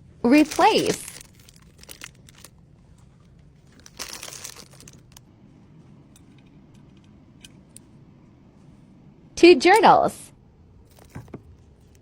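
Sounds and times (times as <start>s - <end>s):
packaging crinkling: 0.3s - 5.3s.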